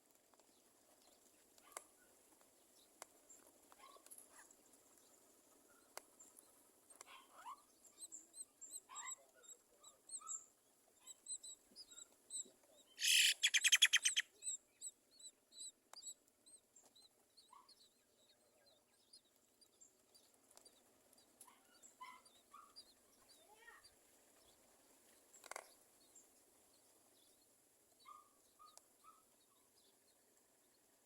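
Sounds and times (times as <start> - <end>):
birds chirping: 12.8 - 14.6
harsh pulsed bird call: 13.0 - 14.2.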